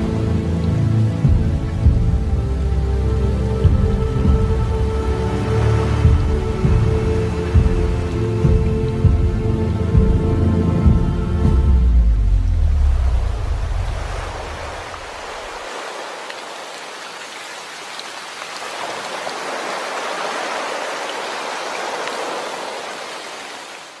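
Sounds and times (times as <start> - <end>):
low musical drone: 0.0 - 15.0
heavy rain hissing: 0.0 - 24.0.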